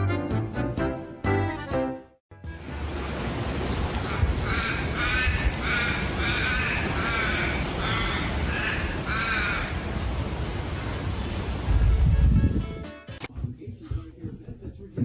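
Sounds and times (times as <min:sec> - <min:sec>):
animal giving harsh calls: 0:04.0 - 0:09.8.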